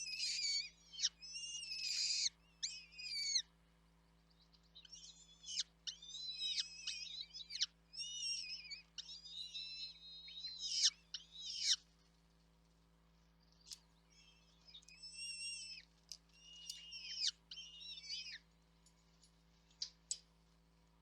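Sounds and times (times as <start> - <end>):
chicks begging calls: 0.0 - 3.4, 4.5 - 11.8, 13.7 - 18.5.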